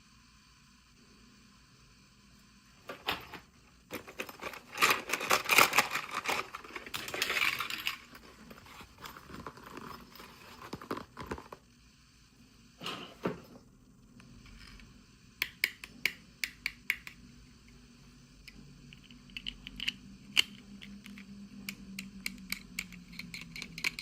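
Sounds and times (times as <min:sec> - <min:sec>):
plastic packaging crinkling: 0:04.0 - 0:11.6.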